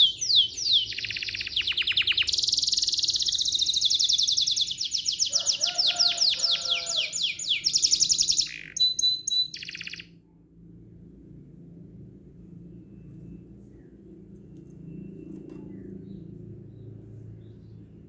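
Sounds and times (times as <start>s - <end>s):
songbird trilling: 0.0s - 10.1s
faint low hum: 0.0s - 18.0s.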